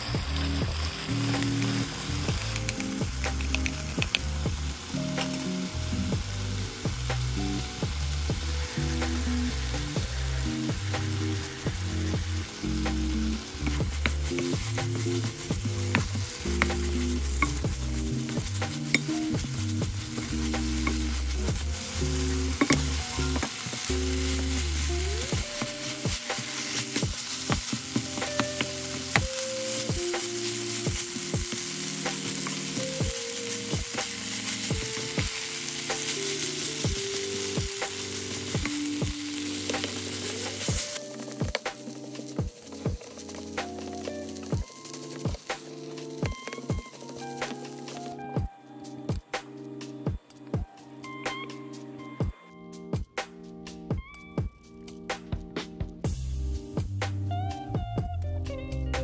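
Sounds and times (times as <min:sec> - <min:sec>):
sauce bubbling: 0:00.0 - 0:47.3
food sizzling in a pan: 0:00.0 - 0:52.1
spatula scraping and tapping pan: 0:12.9 - 0:21.5, 0:22.1 - 0:24.6.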